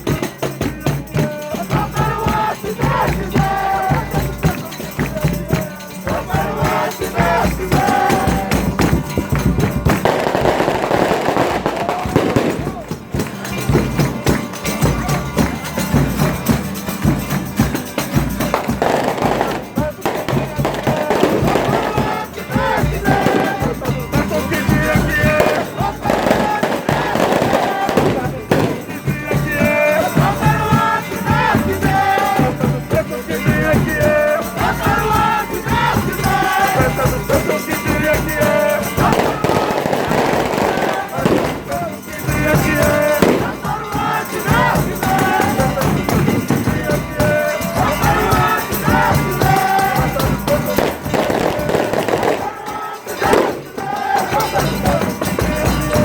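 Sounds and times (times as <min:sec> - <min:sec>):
drum beating: 0:00.0 - 0:56.0
hand percussion rattling and jingling: 0:00.0 - 0:56.0
tambourine: 0:00.0 - 0:56.0.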